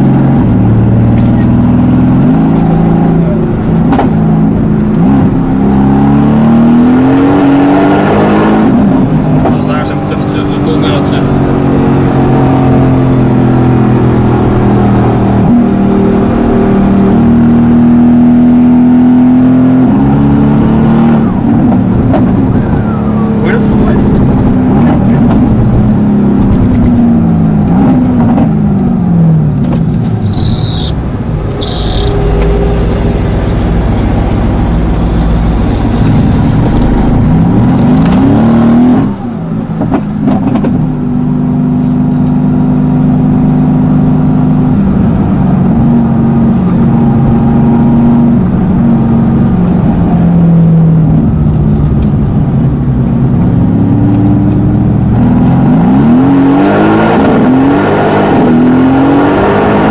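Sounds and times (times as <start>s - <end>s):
sports car engine accelerating: 0.0s - 59.9s
short high chirps: 30.0s - 32.8s.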